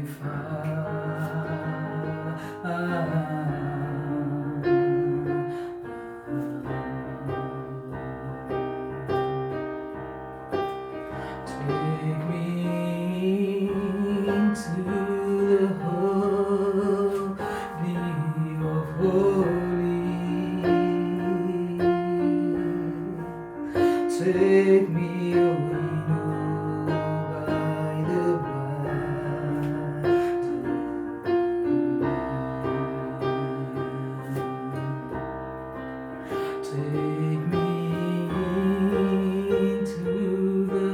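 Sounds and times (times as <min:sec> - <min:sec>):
slow worship music on keyboard: 0:00.0 - 0:40.9.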